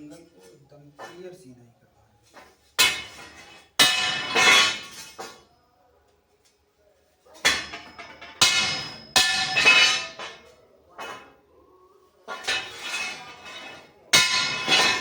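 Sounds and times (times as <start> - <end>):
hammer striking steel: 2.8 - 5.4, 7.4 - 11.4, 12.3 - 15.0.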